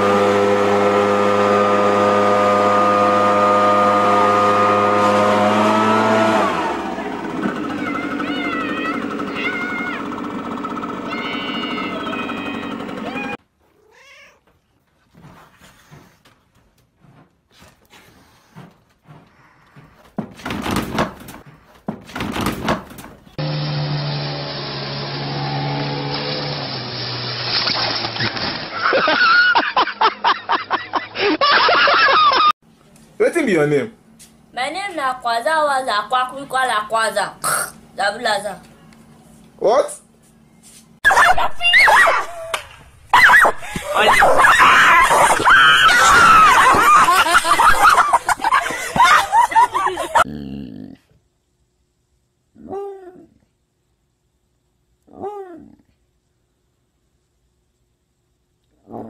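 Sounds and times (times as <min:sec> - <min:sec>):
motorboat engine running: 0:00.0 - 0:13.4, 0:23.4 - 0:28.7
excited high-pitched shouting: 0:07.6 - 0:10.1, 0:11.0 - 0:13.4, 0:41.1 - 0:42.6, 0:43.2 - 0:47.1
person squealing and shrieking: 0:07.7 - 0:10.1, 0:11.0 - 0:13.4, 0:41.1 - 0:48.0
knocks and clatter: 0:18.7 - 0:23.4.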